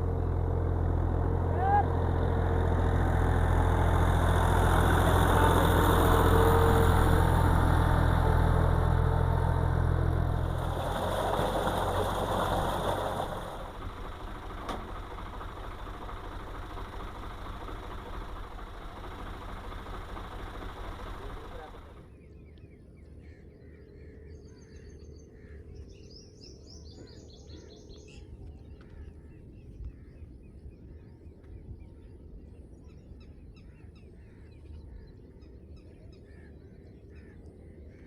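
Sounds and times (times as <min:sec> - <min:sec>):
tractor engine running: 0:00.0 - 0:22.2.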